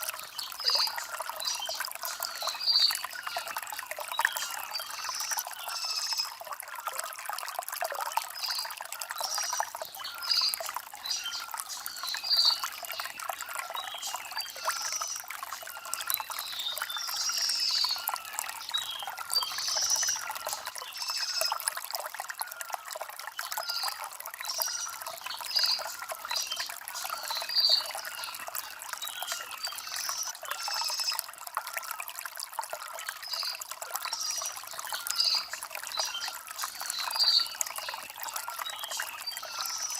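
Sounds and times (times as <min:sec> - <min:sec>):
stream trickling over stones: 0:00.0 - 0:39.9.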